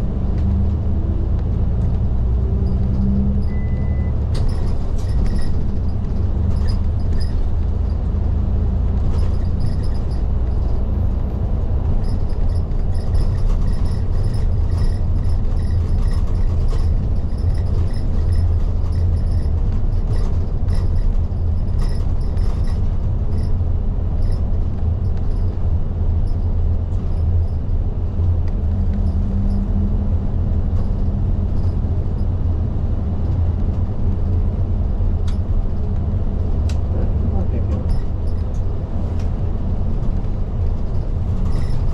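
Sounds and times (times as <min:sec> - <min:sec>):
bus engine and road rumble: 0:00.0 - 0:41.9.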